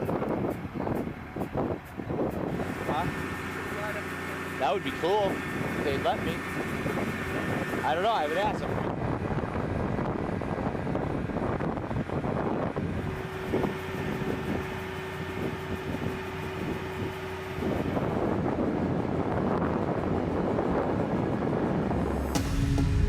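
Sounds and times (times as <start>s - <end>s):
wind buffeting microphone: 0.0s - 4.0s, 5.0s - 22.4s
machinery running: 0.0s - 8.5s, 21.7s - 23.0s
steady hum: 0.0s - 10.4s, 20.0s - 23.0s.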